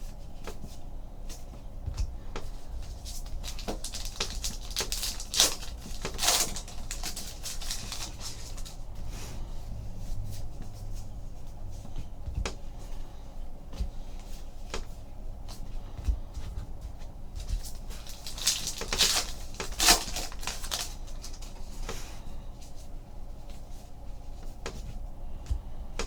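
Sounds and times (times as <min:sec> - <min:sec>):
cards clicking and rustling: 0:02.4 - 0:08.8, 0:17.4 - 0:22.0
crinkling bursts: 0:02.8 - 0:08.8, 0:17.4 - 0:21.8.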